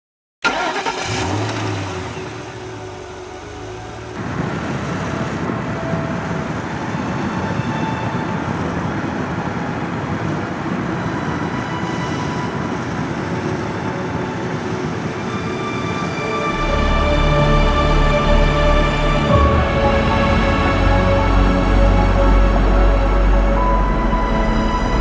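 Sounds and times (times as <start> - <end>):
car engine and road noise: 0.4 - 25.0.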